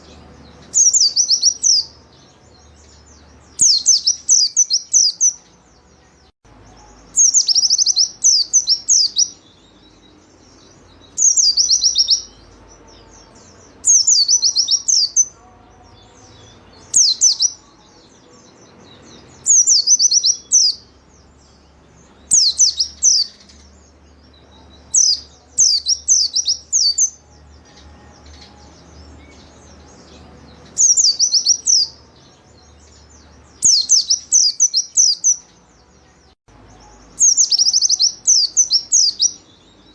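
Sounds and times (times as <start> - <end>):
bird singing rapid high notes: 0.0 - 39.9.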